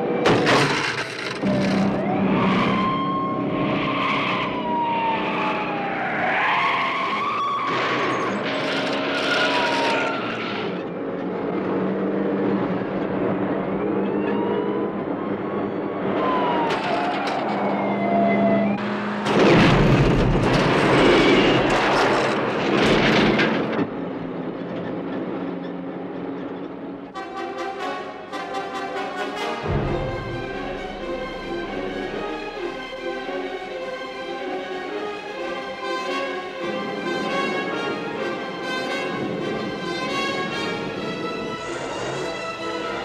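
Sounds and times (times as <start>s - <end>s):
vehicle crashes: 0.1s - 2.8s, 6.8s - 10.8s, 19.0s - 24.0s.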